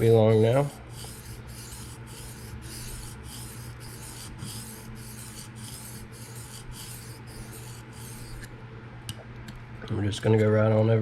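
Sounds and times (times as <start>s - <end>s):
knife scraping on sharpening stone: 0.9s - 8.5s.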